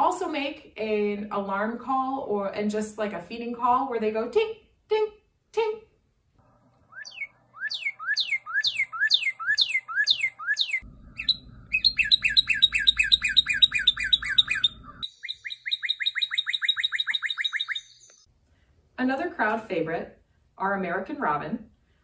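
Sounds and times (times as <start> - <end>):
bird song whistles: 6.9 - 18.3.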